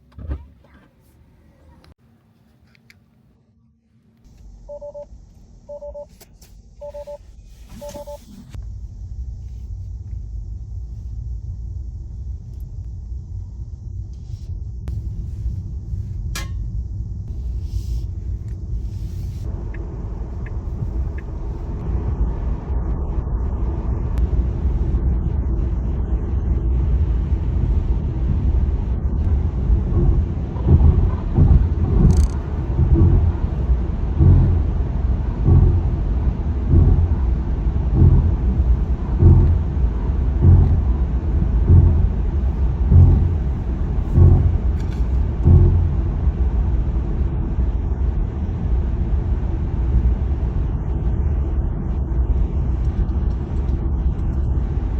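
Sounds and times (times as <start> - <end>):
two-toned electronic beeps: 4.7 - 5.1, 5.7 - 6.1, 6.8 - 8.4
car tyre rumble pulling away: 17.0 - 52.0.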